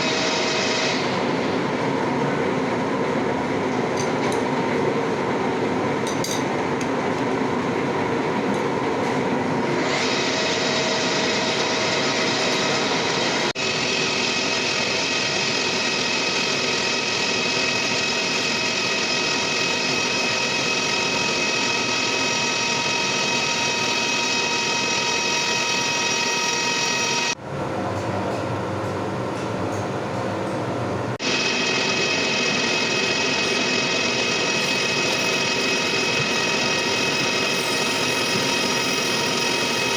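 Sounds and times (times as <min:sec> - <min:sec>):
high ringing whine: 0:10.0 - 0:27.4, 0:31.2 - 0:39.9
machining noise: 0:31.2 - 0:39.9.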